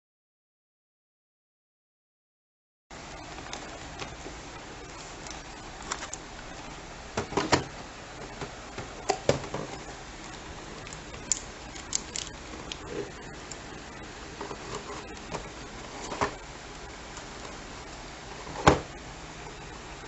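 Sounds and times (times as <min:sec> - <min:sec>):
packaging clicks and crinkles: 0:03.3 - 0:06.6, 0:08.4 - 0:13.7.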